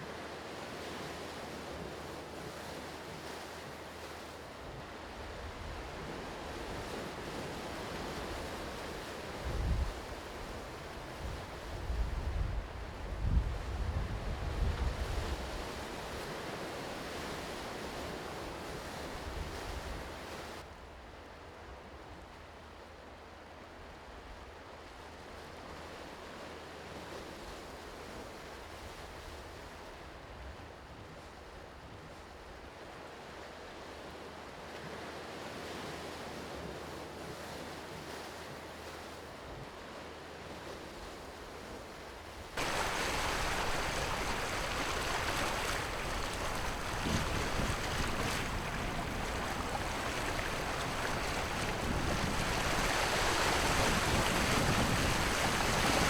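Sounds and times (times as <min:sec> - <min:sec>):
wind on microphone: 0:09.4 - 0:15.8, 0:42.6 - 0:56.0
sea waves washing on shore: 0:42.2 - 0:56.0.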